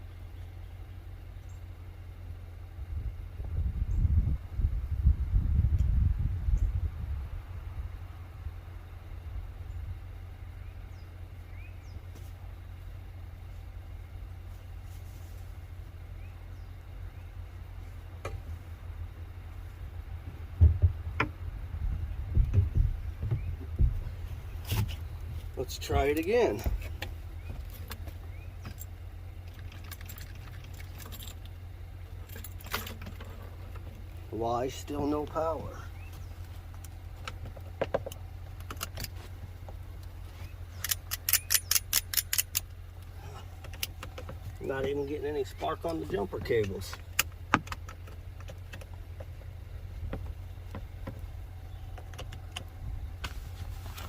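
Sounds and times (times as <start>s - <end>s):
low hum: 0.0s - 54.0s
vehicle engine idling: 0.0s - 54.0s
light clicks and jingles: 24.6s - 34.2s.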